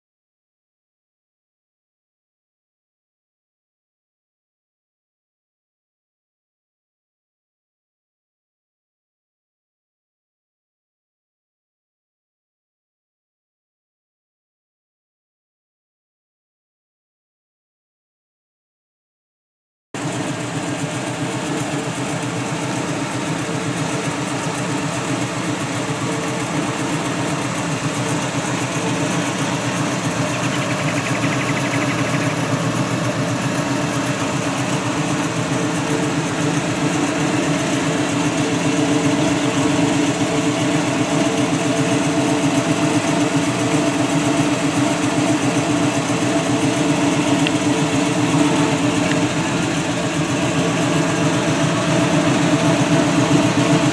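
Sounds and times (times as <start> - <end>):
car engine idling: 20.0 - 53.9.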